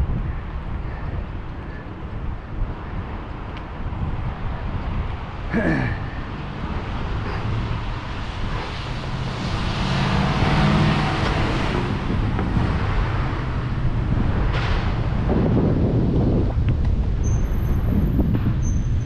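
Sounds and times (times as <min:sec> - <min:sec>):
wind noise on microphone: 0:00.0 - 0:19.0
vehicle passing: 0:05.2 - 0:16.2.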